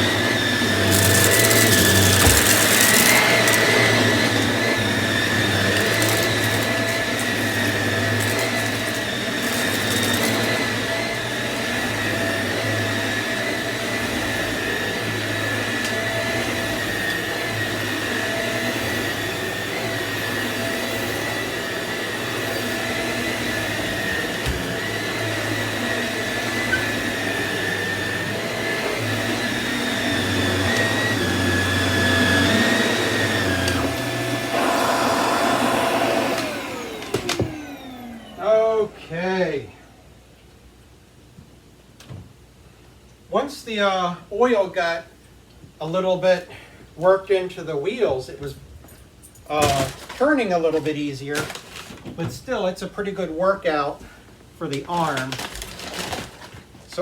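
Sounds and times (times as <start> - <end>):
vacuum cleaner running: 0.0 - 40.4, 49.6 - 50.2.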